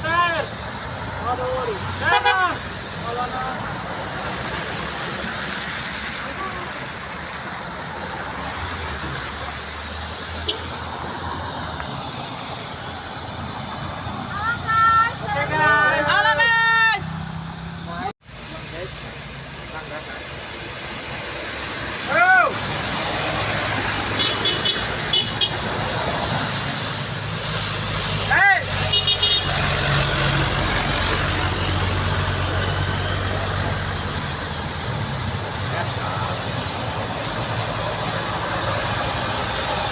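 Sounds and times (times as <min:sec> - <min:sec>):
road and wind noise hiss: 0:00.0 - 0:39.9
truck engine drone: 0:00.0 - 0:39.9
constant rushing noise: 0:17.7 - 0:39.9.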